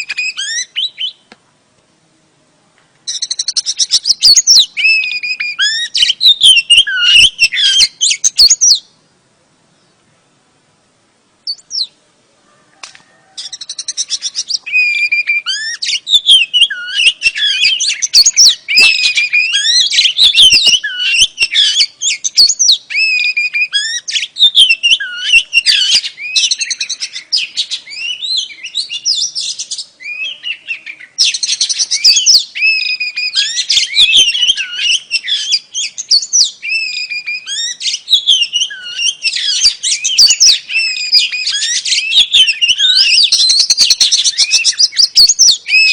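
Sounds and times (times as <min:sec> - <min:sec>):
bird singing whistled notes: 0:00.0 - 0:01.3, 0:03.0 - 0:09.0, 0:11.4 - 0:12.0, 0:13.0 - 0:45.9.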